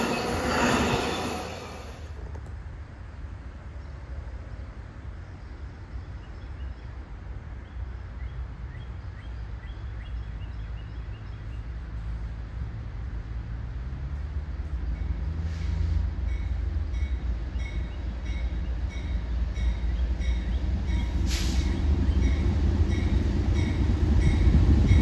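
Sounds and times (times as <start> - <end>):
train rumbling: 0.0 - 2.5, 11.8 - 25.0.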